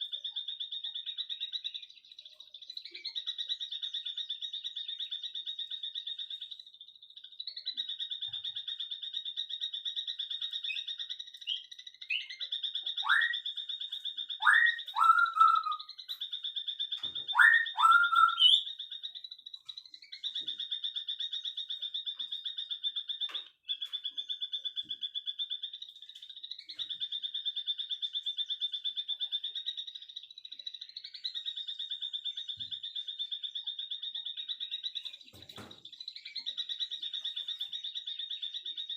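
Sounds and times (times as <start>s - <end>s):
bird upward whistled calls: 13.0s - 13.5s, 14.4s - 16.0s, 17.3s - 18.7s.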